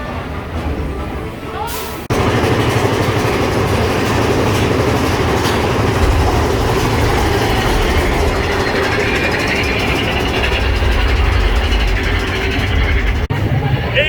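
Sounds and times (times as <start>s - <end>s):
music: 0.0s - 2.1s
ride train rumbling on track: 0.0s - 14.0s.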